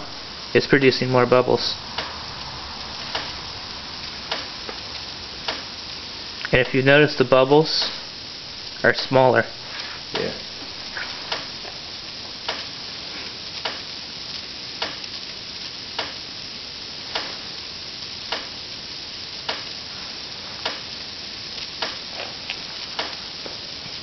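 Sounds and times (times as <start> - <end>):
gas bubbles fizzing: 0.0 - 24.0
sharp clicks: 3.0 - 3.4, 4.3 - 4.5.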